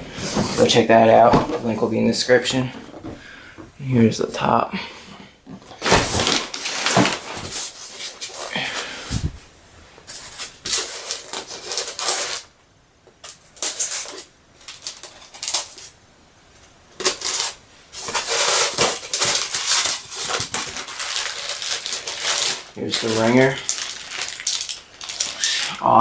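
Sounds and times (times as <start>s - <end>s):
packaging rustling and scraping: 0.0s - 3.4s, 5.5s - 9.4s, 10.0s - 12.5s, 13.2s - 16.0s, 16.6s - 25.8s.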